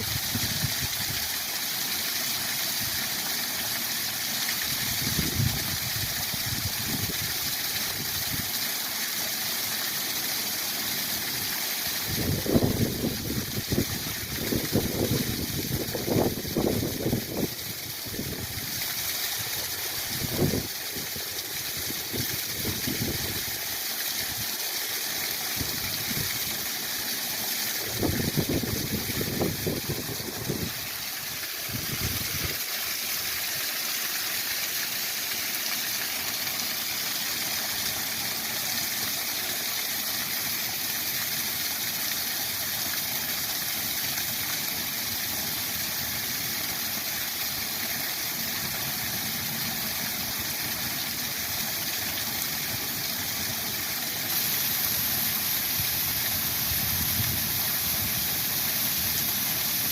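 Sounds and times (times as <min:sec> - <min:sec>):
waterfall rushing: 0:25.3 - 0:43.5, 0:48.4 - 0:59.9.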